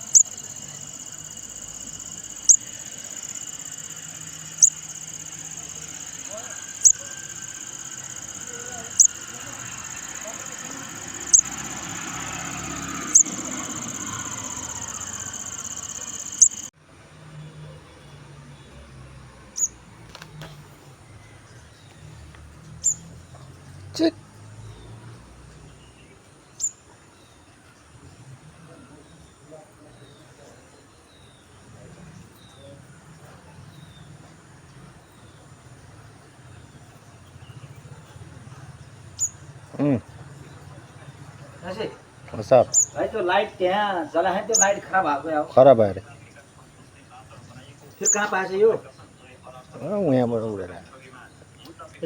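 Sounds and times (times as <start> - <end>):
baby bird chirping: 0.0 - 16.7
steady high-pitched whine: 0.0 - 16.7.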